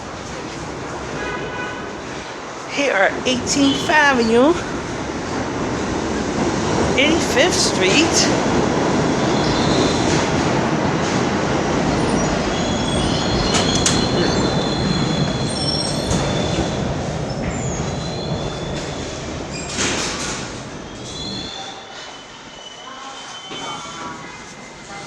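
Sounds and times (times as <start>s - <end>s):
subway train rumbling: 0.0s - 25.0s
sharp clicks from rails: 13.4s - 14.2s
high wheel squeal: 20.9s - 24.7s.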